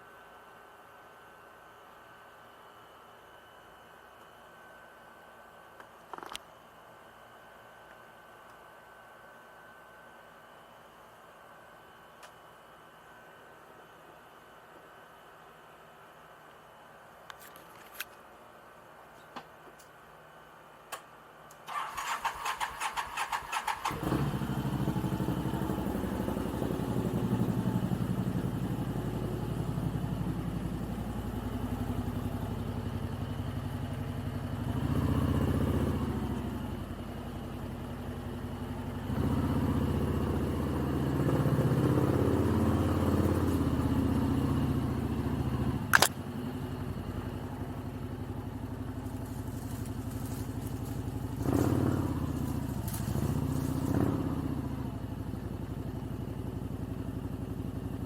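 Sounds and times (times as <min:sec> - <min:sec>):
motorcycle electric starter cranking: 0:21.7 - 0:24.0
motorcycle engine running: 0:22.9 - 0:58.0.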